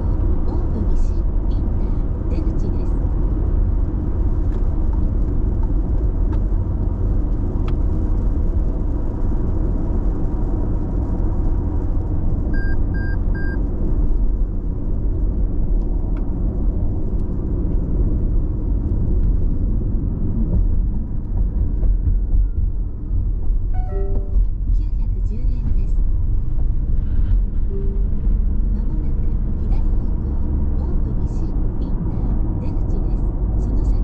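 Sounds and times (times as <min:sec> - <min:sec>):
short electronic beeps: 0:12.6 - 0:13.6, 0:23.8 - 0:24.5, 0:27.7 - 0:28.6.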